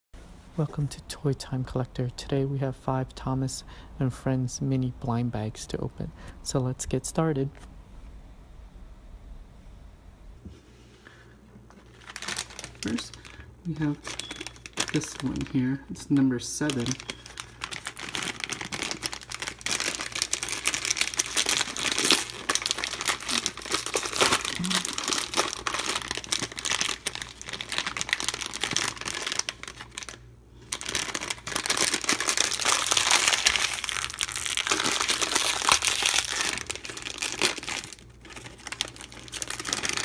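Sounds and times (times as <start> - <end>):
foil packet crinkling and tearing: 11.7 - 40.0.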